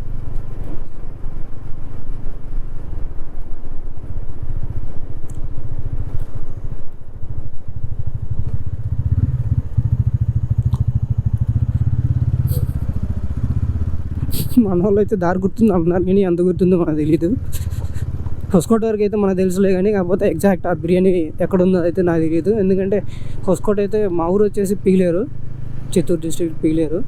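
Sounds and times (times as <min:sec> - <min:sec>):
motorcycle engine running: 0:04.5 - 0:26.7.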